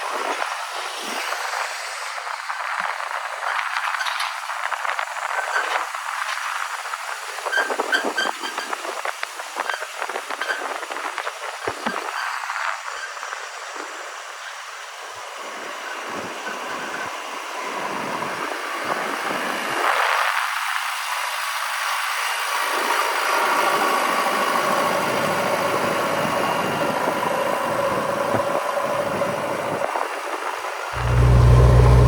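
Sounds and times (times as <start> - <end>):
faint steady whine: 31.0 - 32.0
heavy diesel engine running: 31.0 - 32.0.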